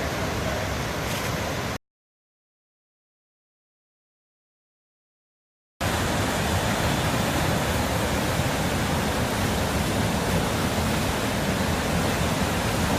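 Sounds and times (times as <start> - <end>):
rushing floodwater: 0.0 - 1.8, 5.8 - 12.9.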